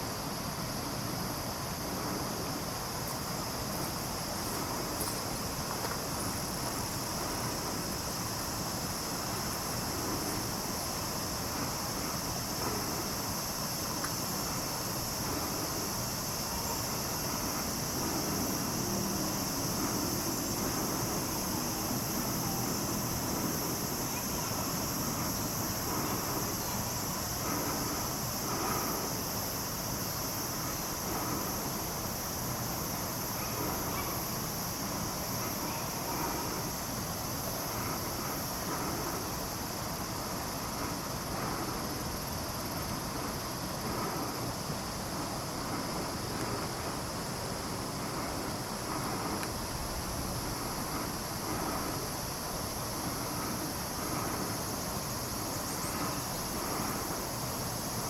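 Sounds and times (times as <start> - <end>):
high-pitched hiss: 0.0 - 58.0
wind-like rush: 0.0 - 58.0.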